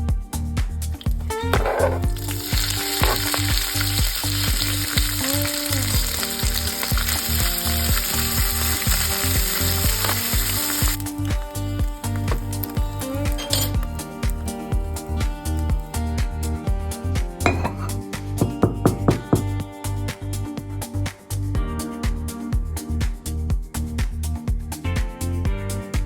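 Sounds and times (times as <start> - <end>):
background music with steady beat: 0.0 - 26.0
food sizzling in a frying pan: 1.0 - 16.1.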